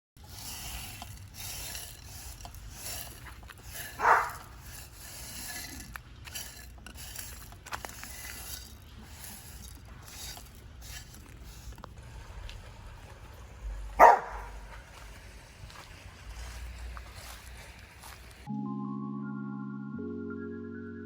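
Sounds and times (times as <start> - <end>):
dog barking: 4.0 - 4.4, 14.0 - 14.6.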